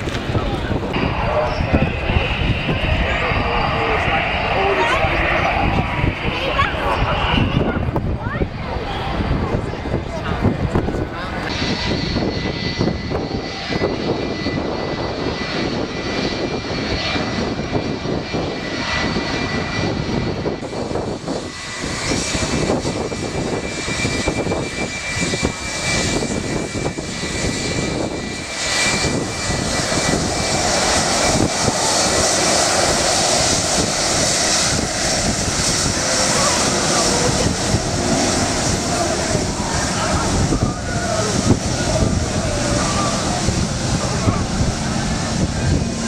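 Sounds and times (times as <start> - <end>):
aircraft engine running: 0.0 - 46.0.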